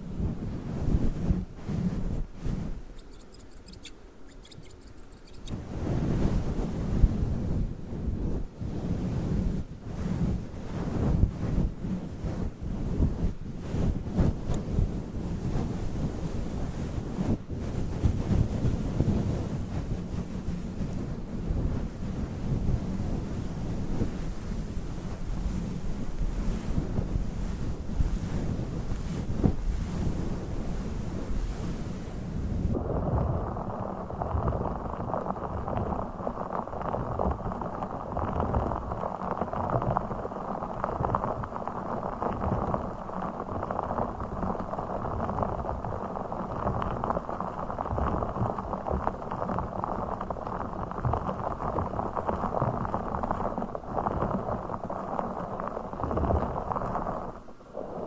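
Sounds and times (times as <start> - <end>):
rustling on microphone cover: 0.0 - 46.0
crackling and rubbing on microphone: 0.0 - 58.0.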